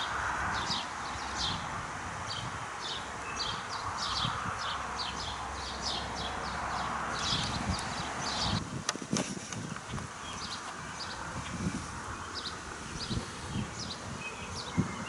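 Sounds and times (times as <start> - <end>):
bird chirping: 2.3 - 8.7, 9.6 - 15.0.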